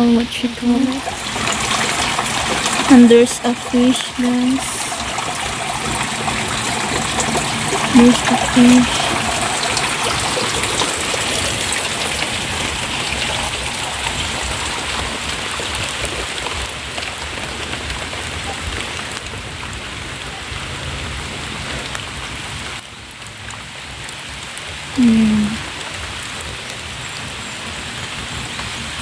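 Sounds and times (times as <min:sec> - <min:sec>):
falling water hissing: 0:00.6 - 0:16.7.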